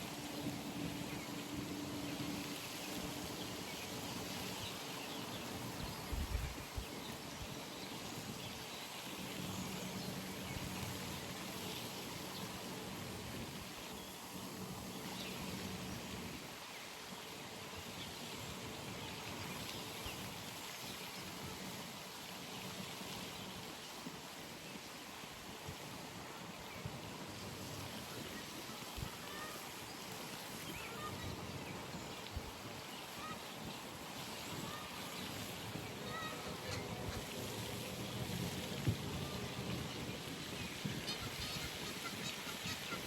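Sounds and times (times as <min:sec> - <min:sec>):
pond ambience: 0:00.0 - 0:43.0.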